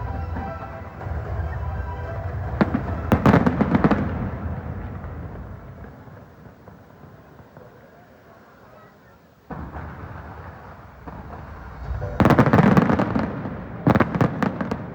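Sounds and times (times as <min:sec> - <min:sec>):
distant fireworks rumble: 0:00.0 - 0:14.9
crackling firework bangs: 0:02.5 - 0:08.1, 0:09.4 - 0:14.9
sharp firework bang: 0:09.5 - 0:14.9.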